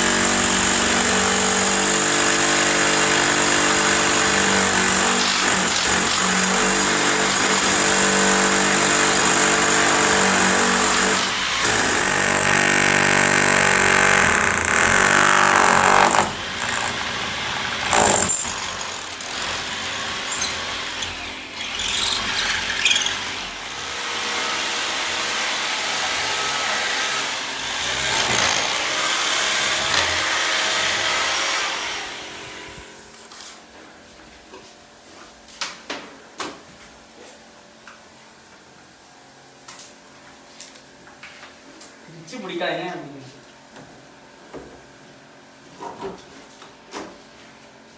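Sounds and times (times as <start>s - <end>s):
power tool motor running: 0.0s - 32.4s.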